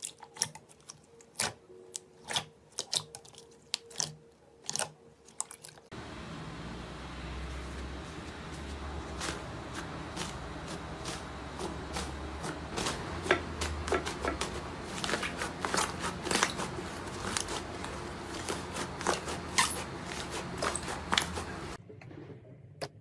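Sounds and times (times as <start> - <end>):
slime clicking and crackling: 0.0 - 5.9, 12.7 - 21.8
low steady hum: 5.9 - 23.0.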